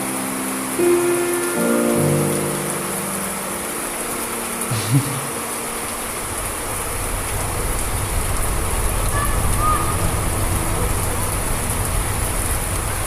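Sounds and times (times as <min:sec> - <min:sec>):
steady rain falling: 0:00.0 - 0:13.0
low rumble of thunder: 0:06.2 - 0:13.0.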